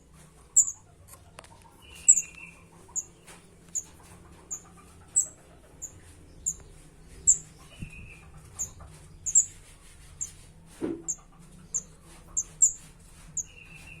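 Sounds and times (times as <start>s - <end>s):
chick chirping: 0.0s - 14.0s.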